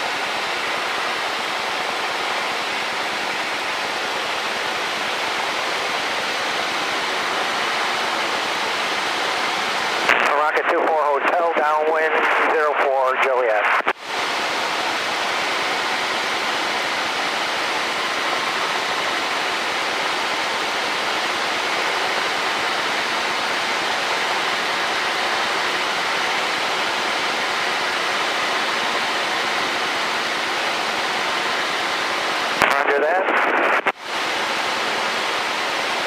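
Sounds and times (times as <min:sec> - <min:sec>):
radio hiss: 0:09.9 - 0:14.0, 0:32.4 - 0:34.6.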